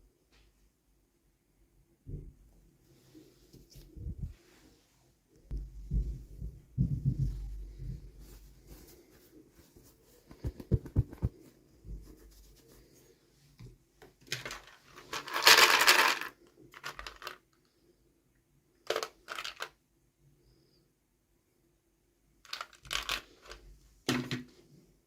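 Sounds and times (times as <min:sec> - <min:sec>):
toy packaging rustling: 0:14.2 - 0:17.5, 0:18.8 - 0:19.8, 0:22.5 - 0:23.6.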